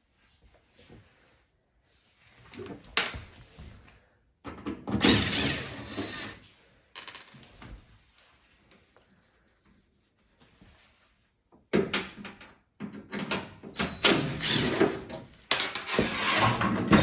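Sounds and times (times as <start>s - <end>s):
long rasping scrape: 5.0s - 6.4s, 15.9s - 17.0s
knocks and rattles: 15.6s - 17.0s.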